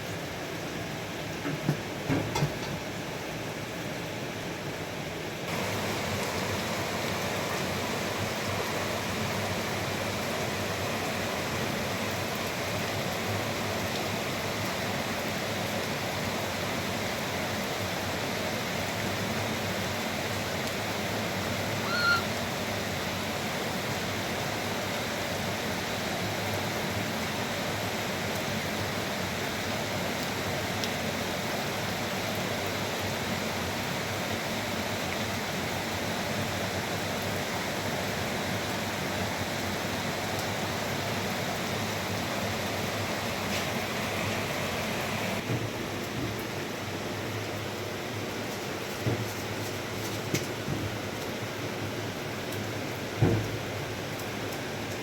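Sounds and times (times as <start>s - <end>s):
running water rushing: 5.4s - 55.0s
brief high chirp: 21.8s - 22.3s.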